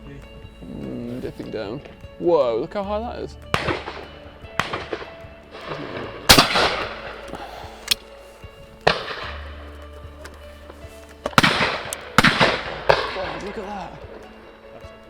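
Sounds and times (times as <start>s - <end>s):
loud shotgun shots with echo: 3.6s - 7.4s, 8.8s - 9.4s, 11.4s - 13.7s
distant shotgun shots: 3.6s - 7.6s, 8.8s - 9.5s, 11.3s - 13.7s.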